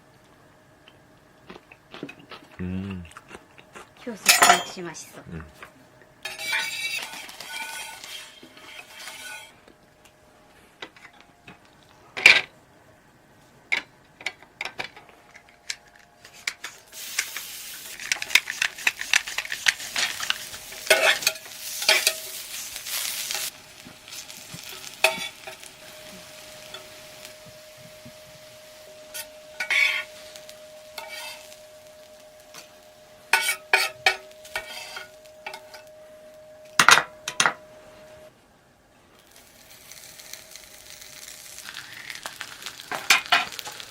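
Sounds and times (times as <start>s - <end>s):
utensils clinking and scraping: 4.2s - 4.9s, 6.2s - 9.6s, 14.6s - 38.2s
food sizzling in a pan: 6.2s - 9.6s, 16.2s - 38.3s, 39.2s - 43.9s
faint steady tone: 23.4s - 39.0s.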